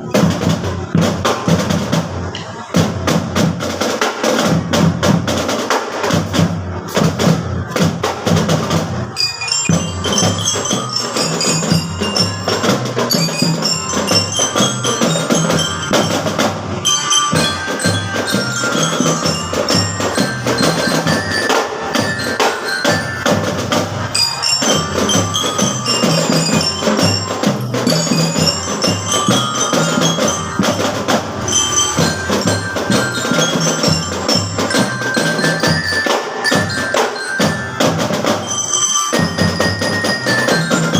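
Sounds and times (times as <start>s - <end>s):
marching drums beating: 0.0s - 40.9s
glockenspiel melody: 9.1s - 40.9s.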